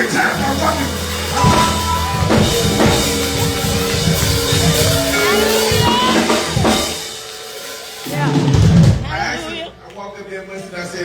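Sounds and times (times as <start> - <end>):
drum kit beat: 0.0 - 9.7
held keyboard chords: 0.0 - 9.8
person speaking: 8.1 - 9.9.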